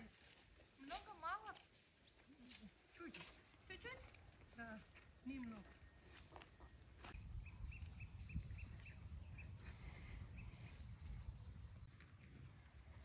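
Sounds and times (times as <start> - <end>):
small bird chirping: 5.6 - 12.0.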